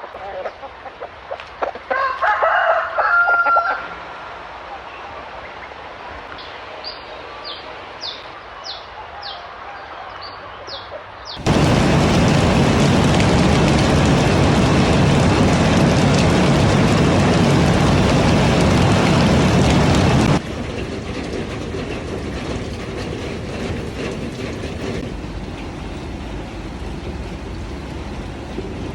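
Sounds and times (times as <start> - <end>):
rooster crowing: 1.9 - 4.0
loud steady rain: 1.9 - 10.2, 11.4 - 28.9.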